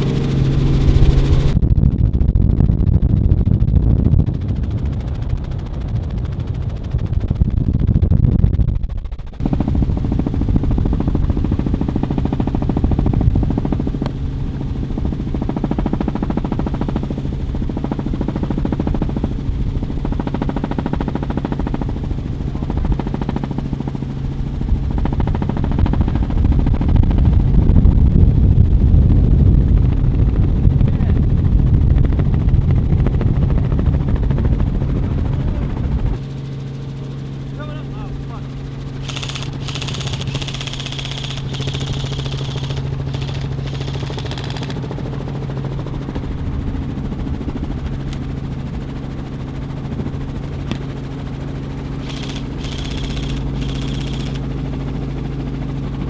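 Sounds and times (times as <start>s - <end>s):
helicopter drone: 0.0s - 56.0s
rapid automatic airsoft gunfire: 39.0s - 44.8s, 52.0s - 54.4s.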